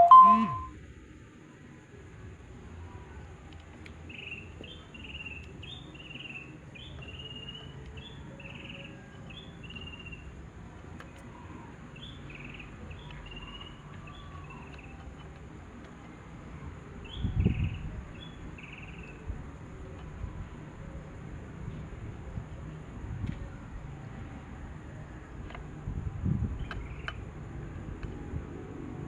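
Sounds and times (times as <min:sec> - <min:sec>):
small bird two-note chirps: 0:00.0 - 0:00.7.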